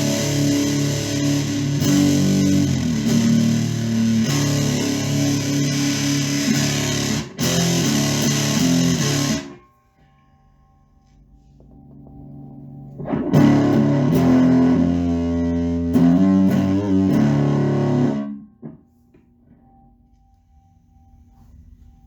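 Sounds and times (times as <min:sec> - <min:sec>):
distorted electric guitar: 0:00.0 - 0:09.7, 0:11.7 - 0:18.8.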